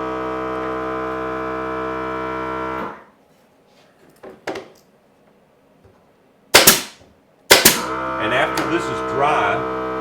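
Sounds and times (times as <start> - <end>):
air compressor humming: 6.5 - 10.0
pressure switch cutting out: 6.6 - 8.8.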